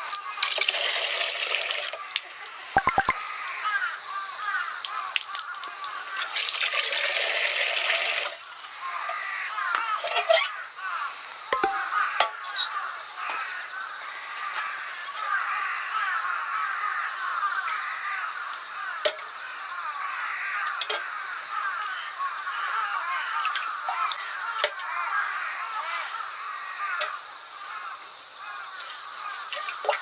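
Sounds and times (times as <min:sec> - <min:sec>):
flock of birds chattering: 0:08.8 - 0:30.0.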